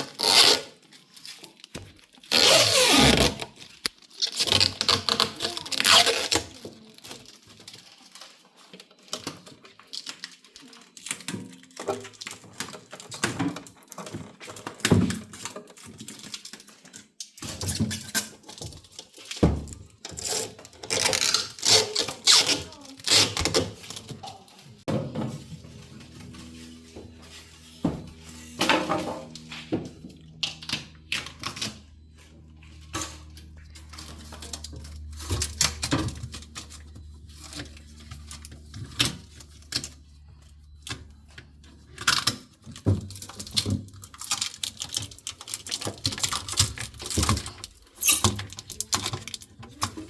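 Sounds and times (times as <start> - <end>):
plastic film peeling and tearing: 0.0 - 8.4, 20.2 - 24.3, 43.1 - 49.5.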